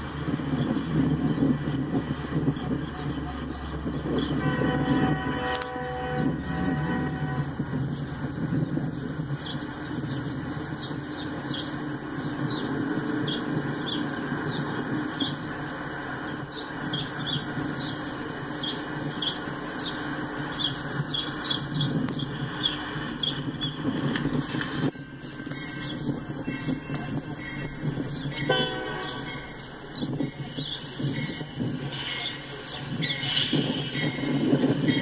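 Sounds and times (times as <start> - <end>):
diesel locomotive rumbling: 0.0 - 35.0.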